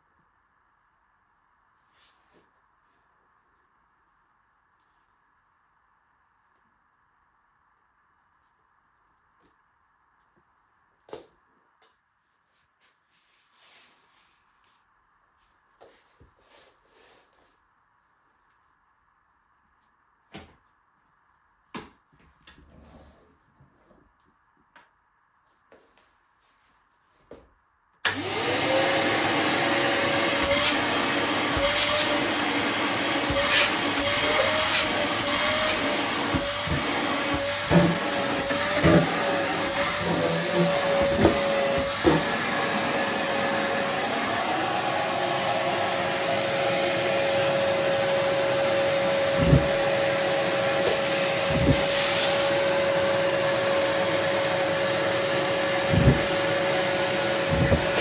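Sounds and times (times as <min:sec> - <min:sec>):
vacuum cleaner whining: 0:28.0 - 0:58.0.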